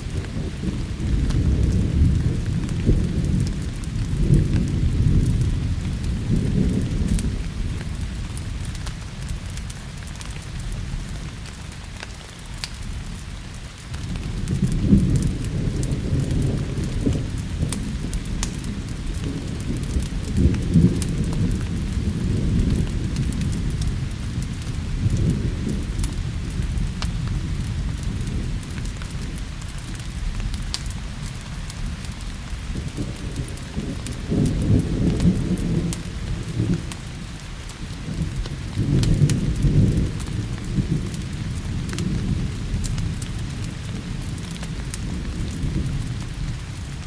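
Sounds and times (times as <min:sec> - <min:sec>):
thunder rumbling: 0:00.0 - 0:11.5, 0:12.8 - 0:47.0
steady rain: 0:00.0 - 0:47.0
wood fire crackling: 0:00.0 - 0:47.0.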